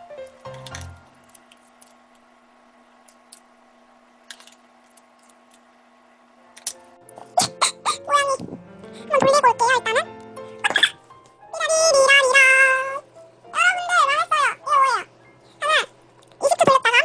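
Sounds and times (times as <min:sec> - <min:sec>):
background music: 0:00.0 - 0:01.2, 0:06.4 - 0:15.5
faint steady hum: 0:00.0 - 0:17.0.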